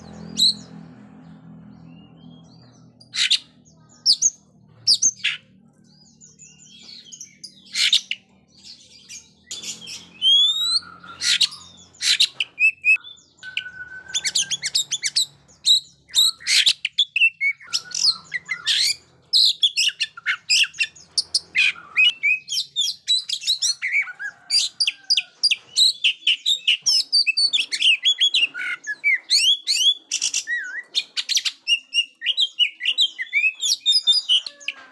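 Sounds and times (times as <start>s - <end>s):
bird singing whistles and trills: 9.5s - 25.1s, 25.7s - 34.6s.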